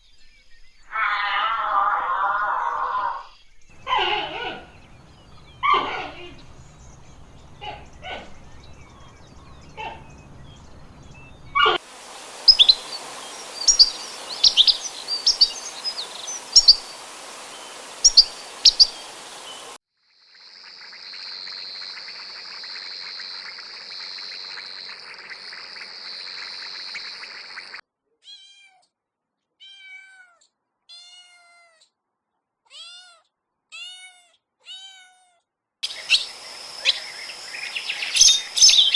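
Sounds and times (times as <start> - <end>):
short animal calls: 0.9 - 19.8
many high chirps: 3.7 - 19.8, 35.8 - 38.9
downward gliding chirps: 3.8 - 19.8.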